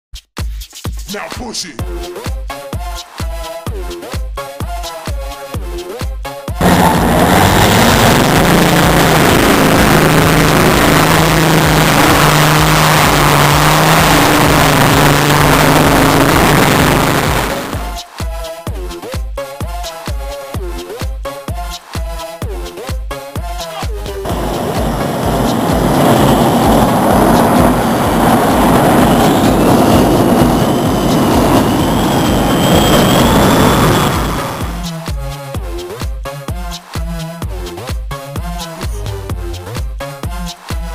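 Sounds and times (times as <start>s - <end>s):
dance music beat: 0.2s - 31.6s, 33.4s - 40.9s
pulling tractor engine at full load: 6.6s - 17.4s
tractor engine roaring under load: 6.6s - 17.8s, 24.2s - 34.8s.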